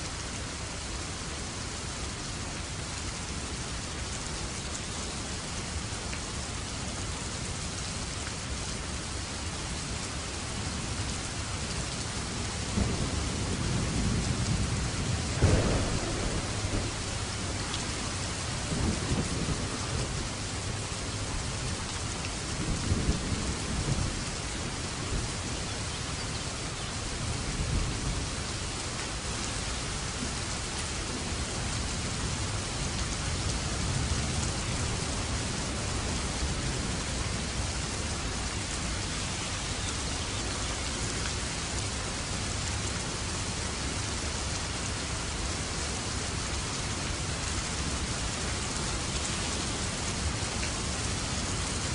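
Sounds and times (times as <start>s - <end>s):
heavy rain falling: 0.0s - 51.9s
thunder rumbling: 12.8s - 20.5s.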